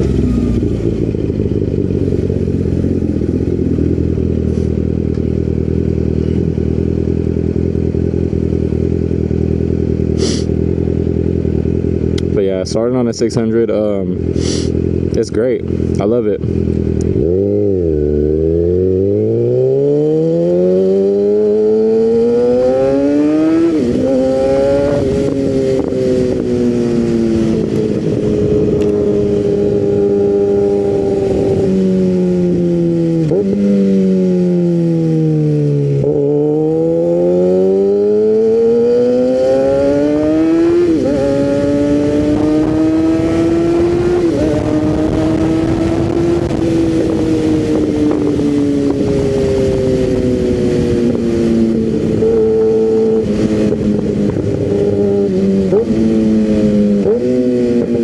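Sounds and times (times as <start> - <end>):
motorcycle engine revving through gears: 0.0 - 58.0
engine blips on downshifts: 14.2 - 58.0.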